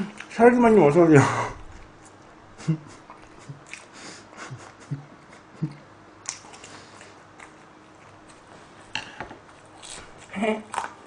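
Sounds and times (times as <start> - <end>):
person chewing food: 2.9 - 11.0.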